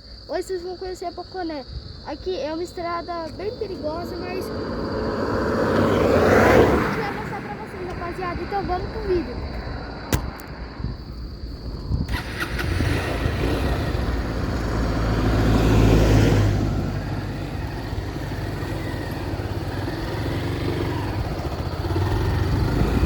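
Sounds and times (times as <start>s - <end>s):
wind noise on microphone: 1.6s - 17.0s, 20.9s - 23.0s
motorcycle engine running: 3.3s - 23.0s.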